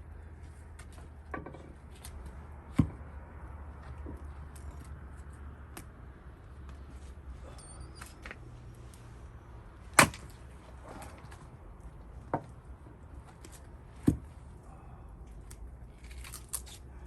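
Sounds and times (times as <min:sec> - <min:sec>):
axe chopping wood: 0:10.0 - 0:10.4.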